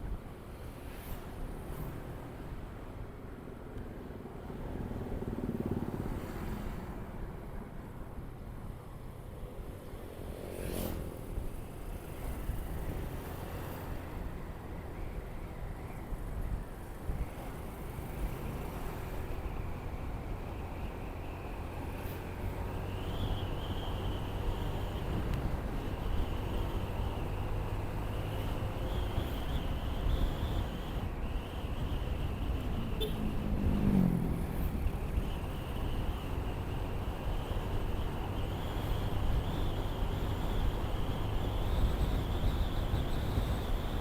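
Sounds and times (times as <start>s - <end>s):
motorcycle engine and wind rumble: 0.0s - 44.0s
vehicle passing by: 32.7s - 35.2s.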